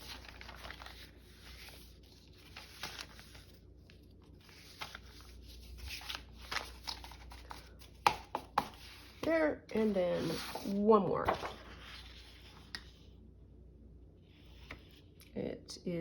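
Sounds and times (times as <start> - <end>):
paper rustling: 0.0 - 13.0
paper taps and brushes: 5.9 - 12.9.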